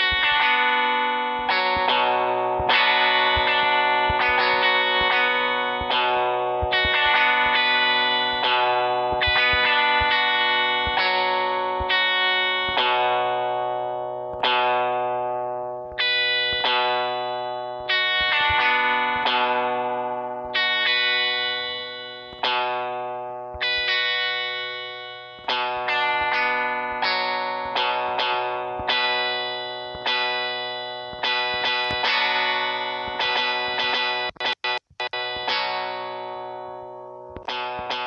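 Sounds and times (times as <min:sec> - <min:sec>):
guitar-like plucked notes and chords: 0:00.0 - 0:38.0.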